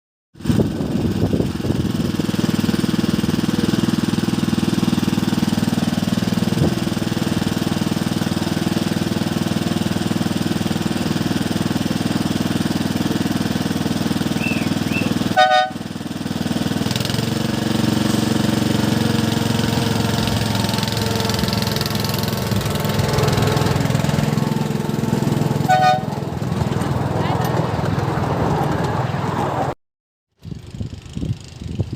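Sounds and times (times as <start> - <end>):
miniature locomotive engine running: 0.4 - 29.0
locomotive horn toot: 14.4 - 16.0, 20.6 - 23.8, 25.0 - 26.4.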